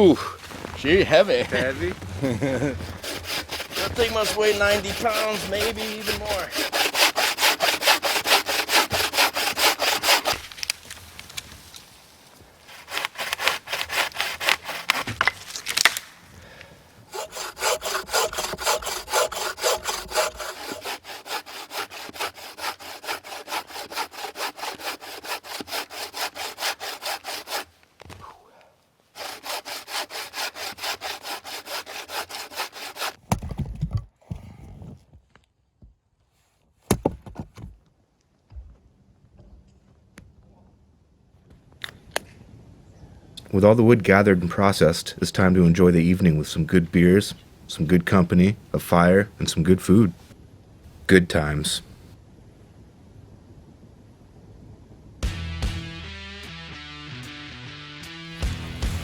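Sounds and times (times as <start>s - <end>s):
hand saw cutting log: 2.4s - 10.6s, 12.7s - 15.9s, 17.1s - 27.7s, 29.2s - 33.2s.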